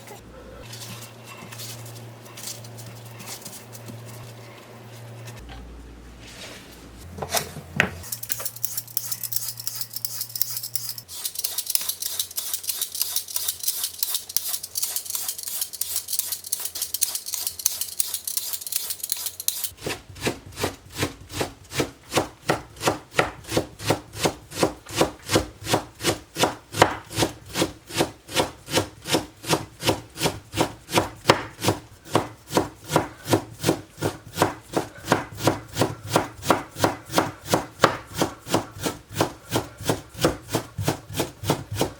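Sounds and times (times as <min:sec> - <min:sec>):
knife chopping on wooden board: 0:19.8 - 0:41.9.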